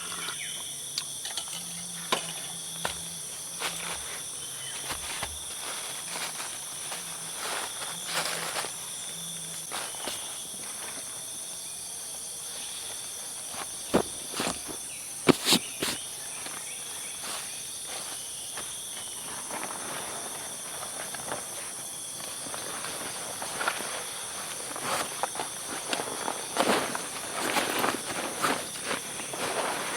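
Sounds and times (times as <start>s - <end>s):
crickets chirping: 0.0s - 29.9s
soft rustling: 12.9s - 16.5s.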